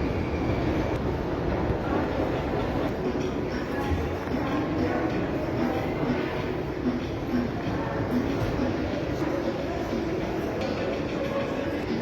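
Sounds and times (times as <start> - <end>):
metro train rumbling: 0.0 - 3.7.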